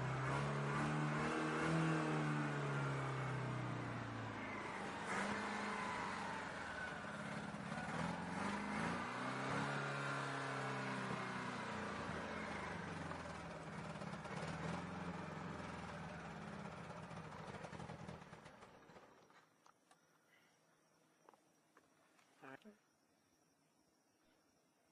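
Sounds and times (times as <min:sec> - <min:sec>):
car engine revving: 0:00.0 - 0:18.2.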